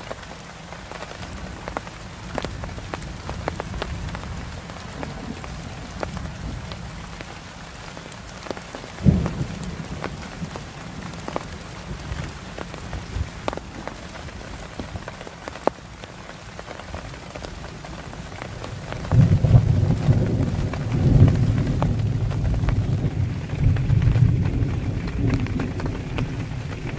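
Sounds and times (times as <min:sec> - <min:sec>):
raindrops ticking on a surface: 0:00.0 - 0:26.9
steady rain: 0:00.0 - 0:26.9
low rumble of thunder: 0:01.4 - 0:07.4, 0:08.8 - 0:15.1, 0:17.8 - 0:26.9.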